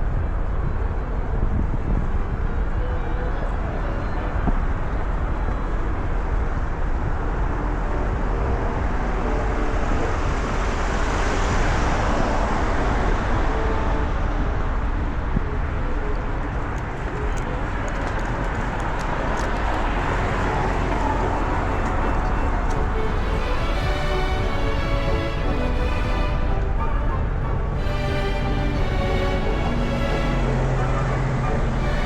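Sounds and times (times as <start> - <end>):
city road traffic: 0.0 - 32.0
vehicle passing: 16.4 - 32.0.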